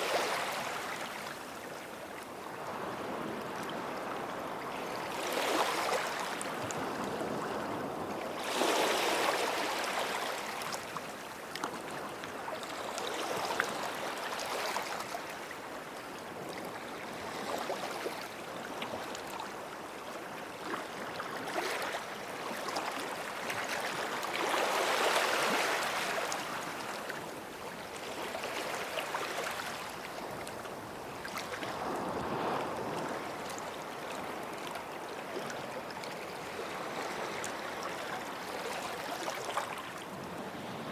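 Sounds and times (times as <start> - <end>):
small waves breaking on shore: 0.0 - 40.9.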